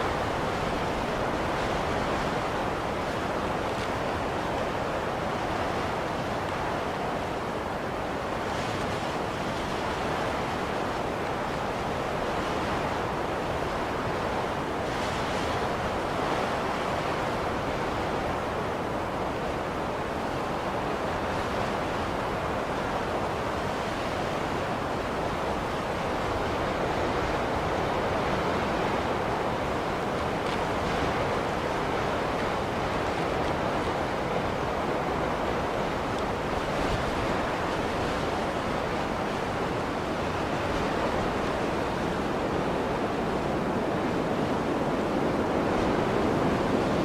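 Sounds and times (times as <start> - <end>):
blizzard wind blowing: 0.0 - 47.0.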